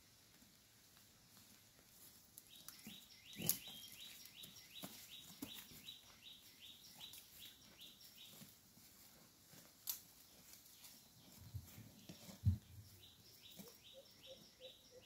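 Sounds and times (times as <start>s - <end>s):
snaps and rustles: 9.6s - 11.0s.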